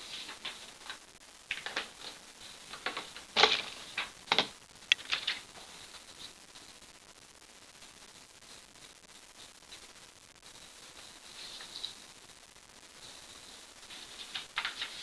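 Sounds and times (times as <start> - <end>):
paper crinkling and rustling: 0.0 - 6.3, 13.0 - 15.0.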